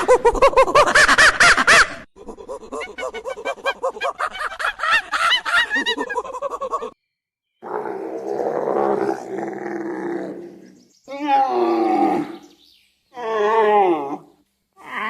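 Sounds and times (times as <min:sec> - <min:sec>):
long low rough animal call: 0:07.6 - 0:15.0.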